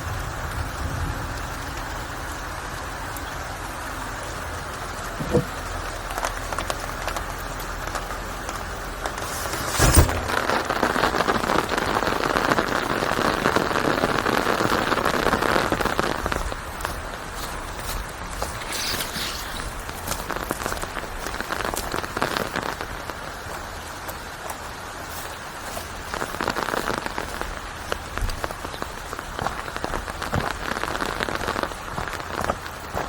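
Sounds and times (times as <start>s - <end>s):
rain falling: 0.0s - 33.0s
sharp thump: 9.6s - 10.4s.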